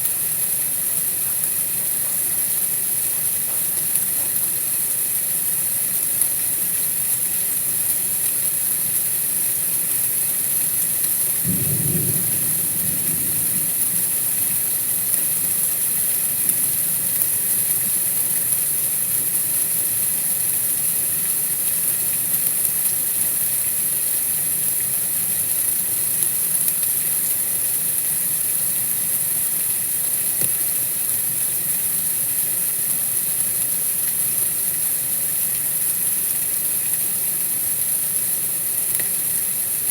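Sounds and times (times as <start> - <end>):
white noise hiss: 0.0 - 39.9
low rumble: 11.5 - 14.8.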